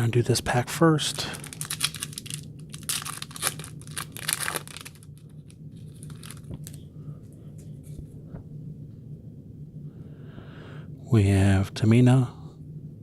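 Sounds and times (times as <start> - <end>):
wrapper tearing and crinkling: 1.3 - 6.8.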